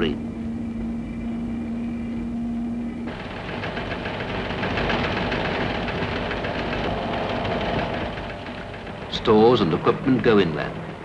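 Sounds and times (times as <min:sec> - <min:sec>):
engine humming: 0:00.0 - 0:11.0
rattling engine knocking: 0:03.1 - 0:11.0.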